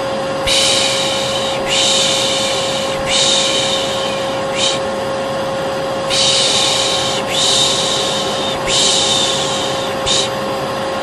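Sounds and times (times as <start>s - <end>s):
hair dryer whining: 0.0s - 11.0s
person shushing: 0.4s - 4.9s, 6.1s - 10.4s.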